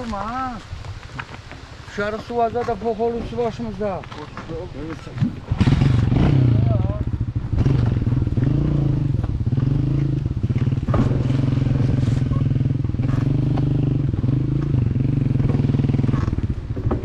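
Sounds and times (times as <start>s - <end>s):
motorcycle engine running: 5.4s - 17.0s.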